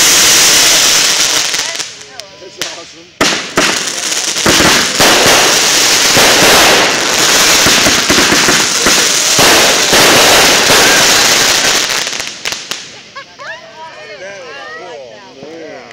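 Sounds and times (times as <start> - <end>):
fireworks crackling and popping: 0.0 - 15.9.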